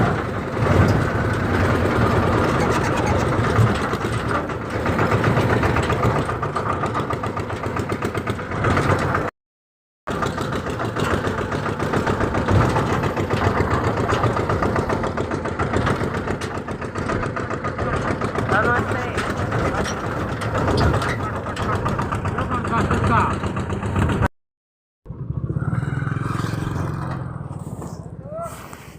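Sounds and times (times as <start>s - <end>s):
tractor diesel engine running: 0.0s - 9.3s, 10.1s - 24.3s, 25.1s - 28.9s.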